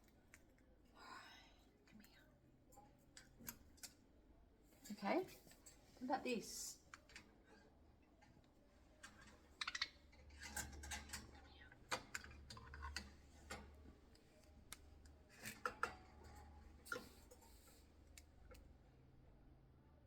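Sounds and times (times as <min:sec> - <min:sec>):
faint light clicks and taps: 0:01.8 - 0:04.0.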